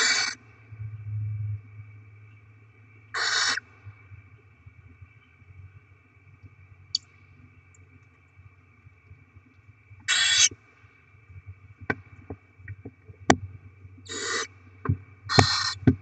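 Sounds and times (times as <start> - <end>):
owl hissing screech: 0.0 - 0.4, 3.2 - 3.6, 10.1 - 10.5, 14.1 - 14.5, 15.3 - 15.8
faint steady hum: 0.0 - 16.0.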